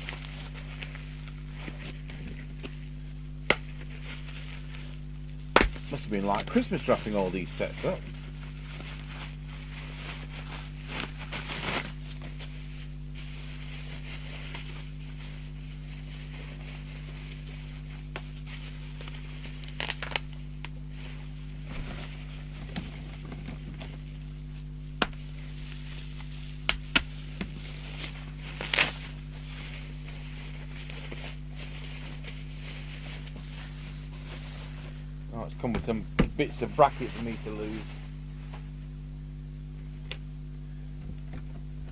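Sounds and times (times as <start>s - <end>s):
low electrical hum: 0.0s - 41.9s
clicks and knocks: 5.6s - 5.8s.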